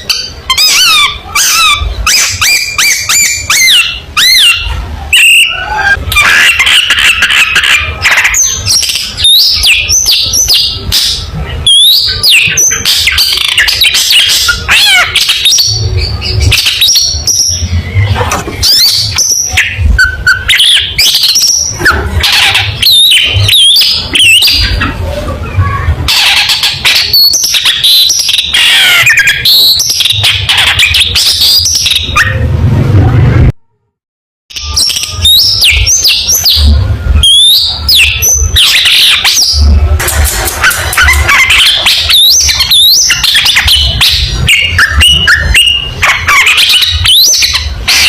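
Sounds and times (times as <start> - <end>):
shrike singing: 34.6 - 48.0.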